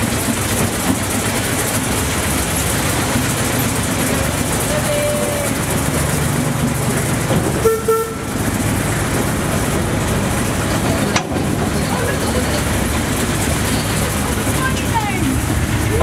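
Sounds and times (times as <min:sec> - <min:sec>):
train wheels rumbling: 0:00.0 - 0:16.0
train horn toot: 0:07.6 - 0:08.4.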